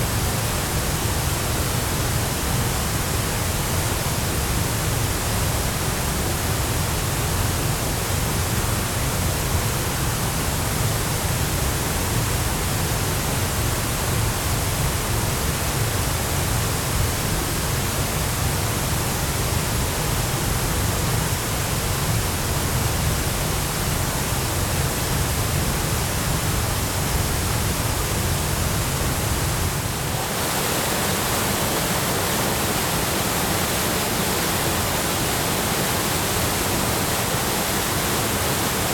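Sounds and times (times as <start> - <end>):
waterfall rushing: 28.7 - 38.9.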